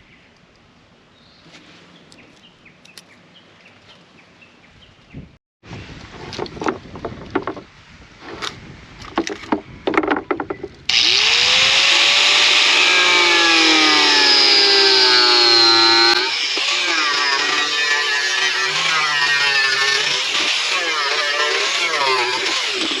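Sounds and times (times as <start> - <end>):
wood knocking: 6.5 - 7.7, 9.2 - 10.7
power saw cutting wood: 10.9 - 23.0.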